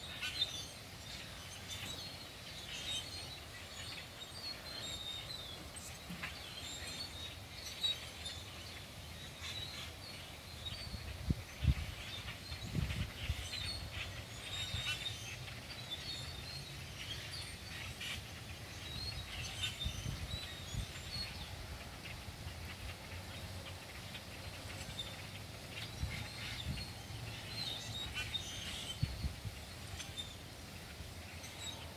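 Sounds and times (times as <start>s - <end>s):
flock of small birds chirping: 0.0s - 31.9s.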